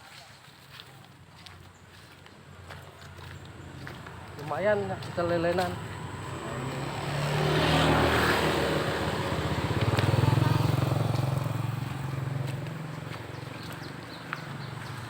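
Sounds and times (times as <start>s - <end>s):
passing vehicle engine: 3.4s - 15.0s.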